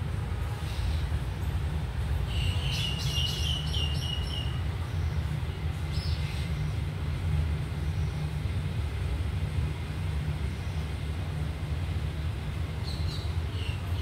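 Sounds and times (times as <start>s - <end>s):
steady low rumble: 3.9s - 14.0s.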